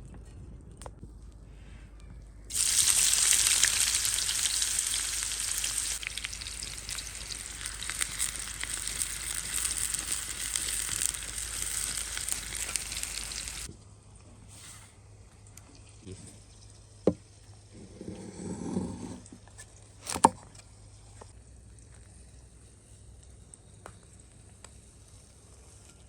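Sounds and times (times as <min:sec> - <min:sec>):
food sizzling in hot oil: 0:02.5 - 0:13.7.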